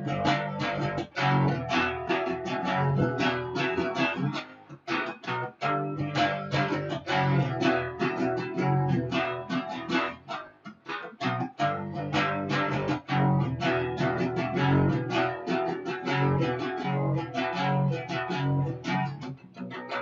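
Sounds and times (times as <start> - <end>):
guitar power-chord riff: 0.0 - 20.0.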